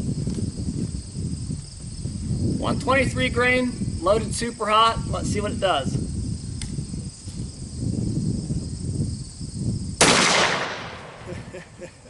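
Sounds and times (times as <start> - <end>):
rifle shot echoing: 10.0 - 11.3.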